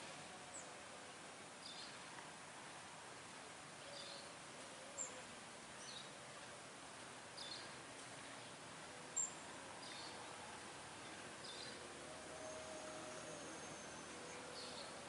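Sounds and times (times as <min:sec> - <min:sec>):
outdoor background hiss: 0:00.0 - 0:15.0
small birds chirping: 0:07.3 - 0:08.6, 0:11.0 - 0:11.8, 0:12.4 - 0:15.0.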